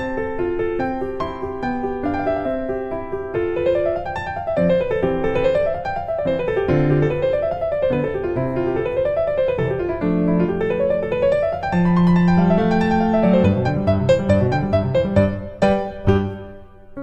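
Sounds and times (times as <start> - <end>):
gentle piano arpeggios: 0.0 - 17.0
sustained piano bass notes: 3.5 - 17.0.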